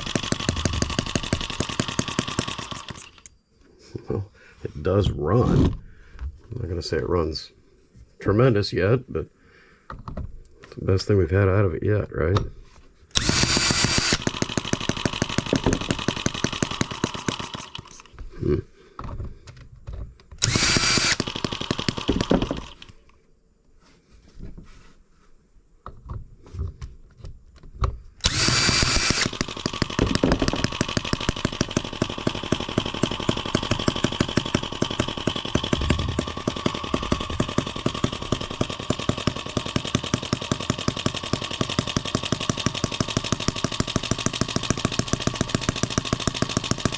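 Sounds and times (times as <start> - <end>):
model engine firing: 0.0 - 3.3, 13.1 - 18.1, 20.4 - 23.0, 28.2 - 46.9.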